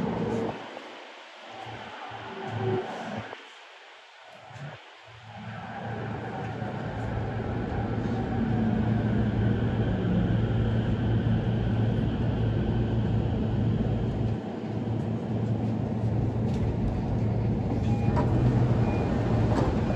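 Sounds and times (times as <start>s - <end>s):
train wheels rumbling on rails: 7.1s - 19.9s.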